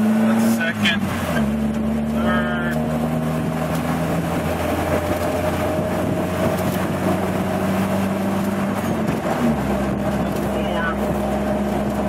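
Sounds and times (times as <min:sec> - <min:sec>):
car engine running while driving: 0:00.0 - 0:12.0.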